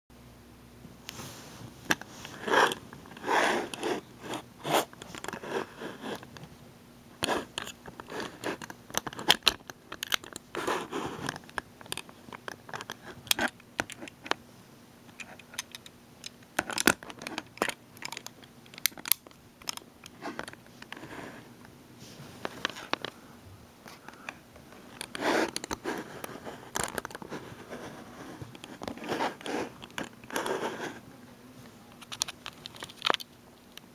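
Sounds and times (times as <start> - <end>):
sharp clicks and scrapes: 1.9 - 6.5, 7.2 - 14.4, 15.1 - 21.4, 24.1 - 31.0.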